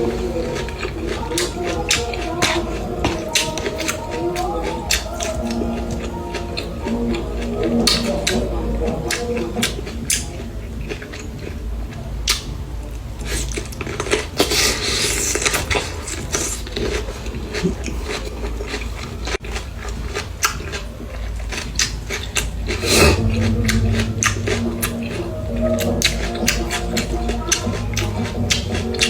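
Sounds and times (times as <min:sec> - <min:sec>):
chewing and crunching salad: 0:00.0 - 0:29.0.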